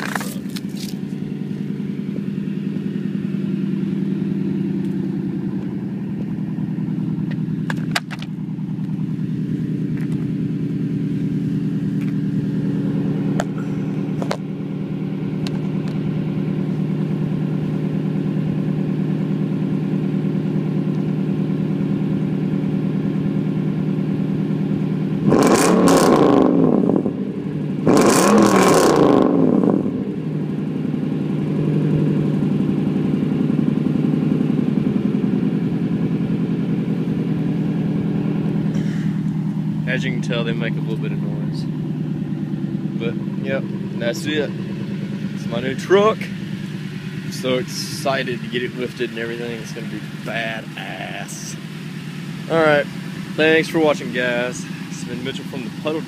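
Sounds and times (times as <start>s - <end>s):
truck engine idling and revving: 0.0s - 56.0s.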